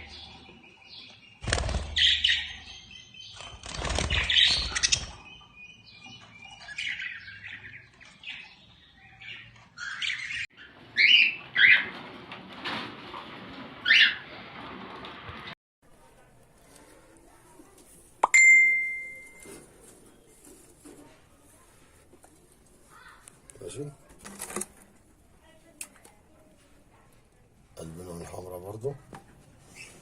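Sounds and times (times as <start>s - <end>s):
caged birds chirping: 0.0s - 12.1s, 13.8s - 14.4s, 27.8s - 30.0s.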